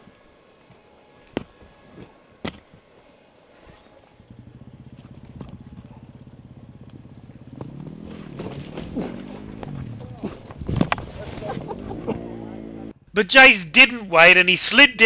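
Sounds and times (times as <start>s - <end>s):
motorcycle engine running: 4.0s - 13.0s.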